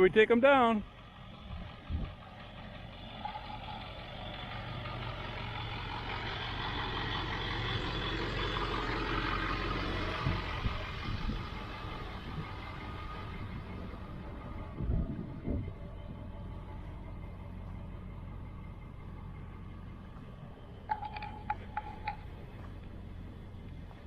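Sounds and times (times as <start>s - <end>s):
road noise: 0.0s - 24.0s
vehicle engine hum: 0.0s - 24.0s
knocks and rattles: 20.8s - 22.8s.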